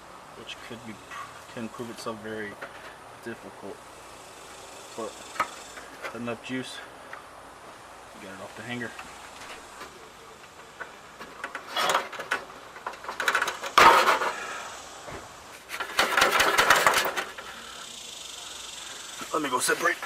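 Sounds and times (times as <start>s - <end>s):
metal clanking and rattling: 11.2s - 14.5s, 15.7s - 17.5s.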